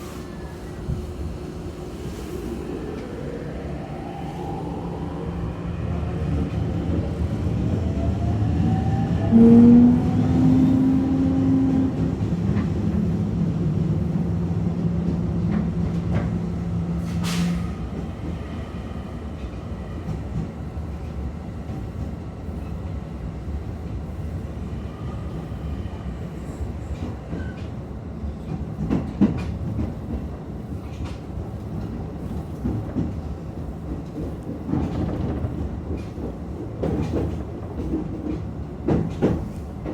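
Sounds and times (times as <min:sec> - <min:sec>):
train rolling noise: 0:00.0 - 0:39.9
train inverter whining: 0:02.5 - 0:17.8.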